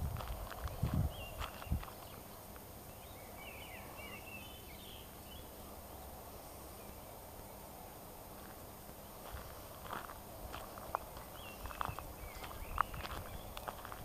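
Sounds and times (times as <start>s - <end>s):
footsteps on gravel: 0.0s - 2.2s, 8.4s - 14.0s
faint outdoor background: 0.0s - 14.0s.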